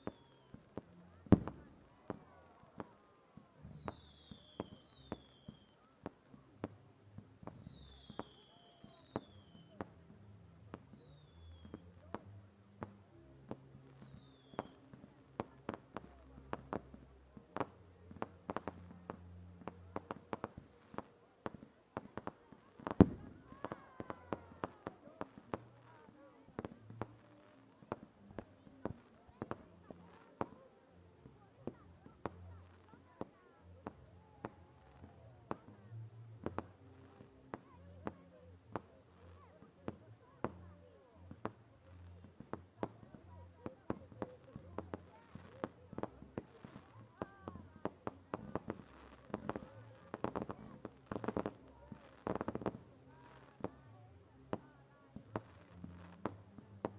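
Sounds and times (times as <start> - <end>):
fireworks crackling and banging: 0.0 - 56.9
fireworks bangs: 1.2 - 2.2, 22.0 - 26.1.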